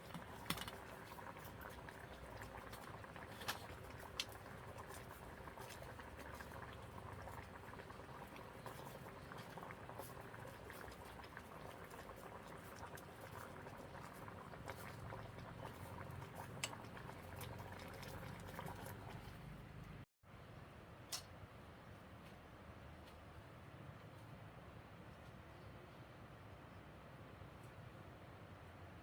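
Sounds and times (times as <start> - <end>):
pot of liquid boiling: 0.0 - 19.8.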